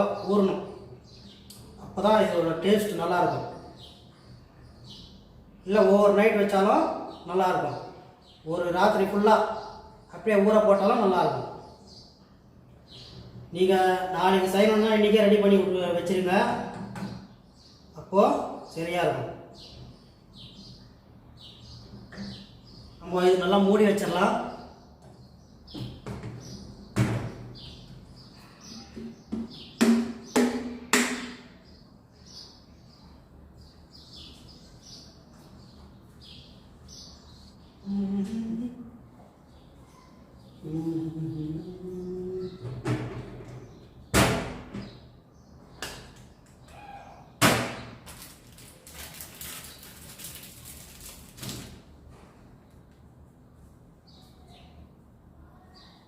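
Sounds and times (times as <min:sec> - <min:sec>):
small birds chirping: 0:00.0 - 0:56.0
sharp knock: 0:29.0 - 0:31.5.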